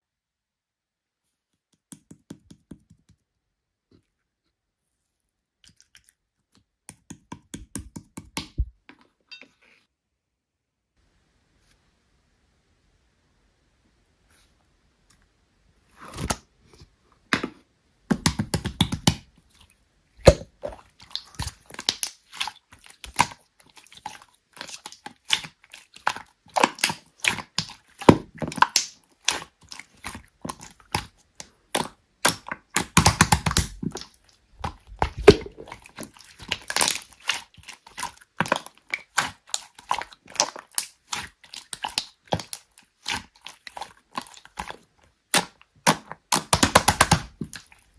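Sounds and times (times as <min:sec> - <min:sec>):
slime clicking and popping: 0:20.2 - 0:22.2, 0:26.6 - 0:37.4, 0:45.3 - 0:47.7.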